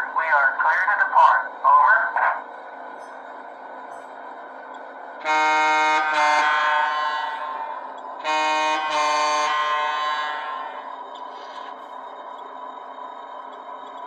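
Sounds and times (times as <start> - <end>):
locomotive horn blasts: 5.2 - 10.9.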